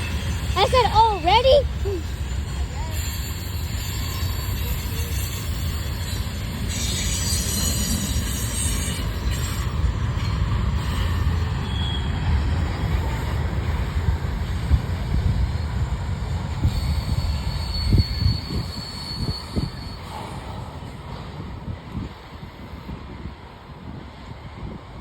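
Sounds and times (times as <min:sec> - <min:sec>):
train rumbling by: 0:00.0 - 0:25.0
wheel squeal: 0:02.0 - 0:12.4, 0:16.6 - 0:20.9.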